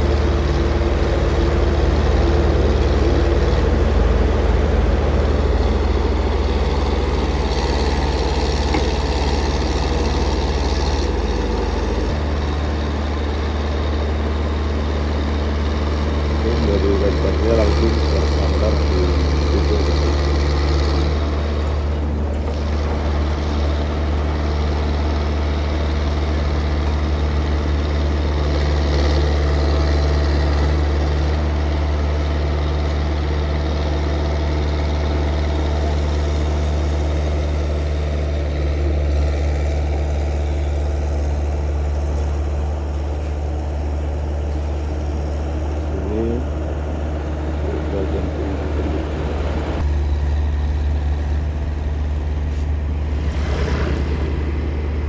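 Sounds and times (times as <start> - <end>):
motor vehicle engine running: 0.0 - 55.0.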